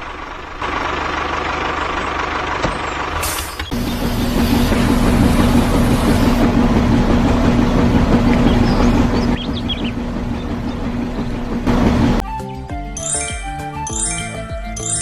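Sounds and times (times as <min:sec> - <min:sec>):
vehicle engine humming: 0:00.0 - 0:12.2
tinkling music: 0:12.9 - 0:15.0.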